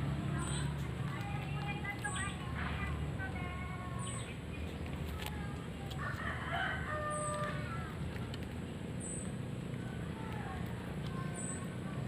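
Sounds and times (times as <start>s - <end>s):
rooster crowing: 6.0s - 8.0s.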